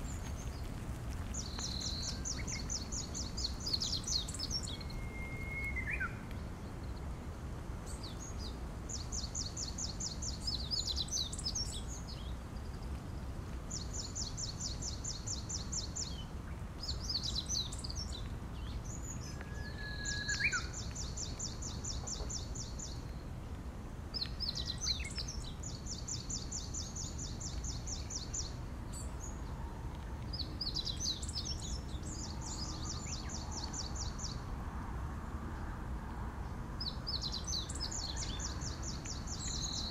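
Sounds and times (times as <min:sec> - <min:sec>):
songbird singing trills: 0:00.0 - 0:07.1, 0:07.8 - 0:23.3, 0:24.1 - 0:34.4, 0:36.8 - 0:39.9.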